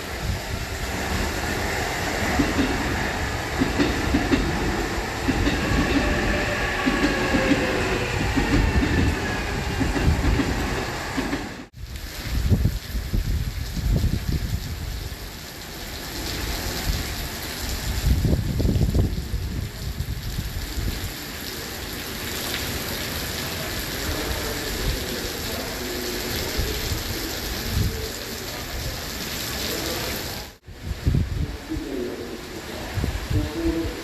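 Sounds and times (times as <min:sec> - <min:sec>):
wind gusts on microphone: 0:00.0 - 0:15.2, 0:16.3 - 0:21.1, 0:26.4 - 0:29.0, 0:30.6 - 0:32.1, 0:32.8 - 0:34.0
heavy rain hissing: 0:00.0 - 0:34.0.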